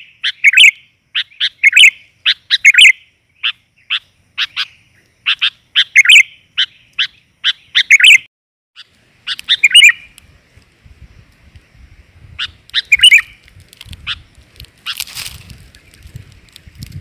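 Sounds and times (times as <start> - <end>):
bulbul chirping and warbling: 0.0 - 10.1, 12.4 - 13.4.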